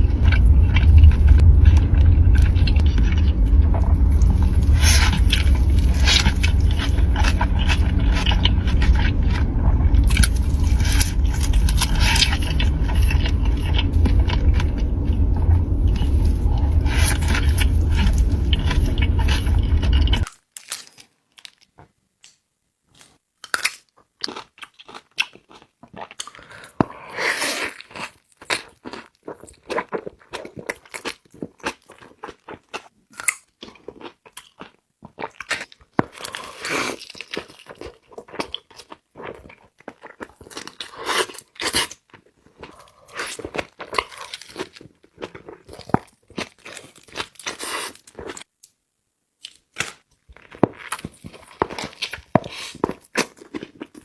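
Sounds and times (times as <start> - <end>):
loud low rumble: 0.0 - 20.3
crunchy chewing: 0.0 - 21.7.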